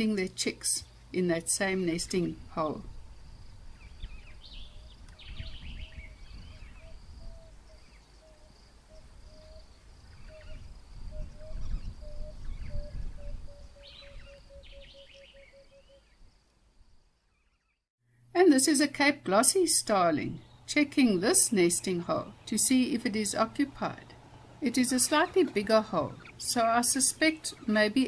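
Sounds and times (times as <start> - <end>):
birds chirping: 0.0 - 17.8, 19.6 - 28.0
low piping bird note: 2.9 - 16.3.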